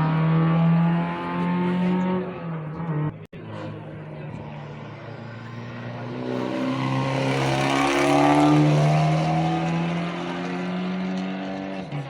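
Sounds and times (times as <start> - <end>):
car engine accelerating past: 4.4 - 12.0.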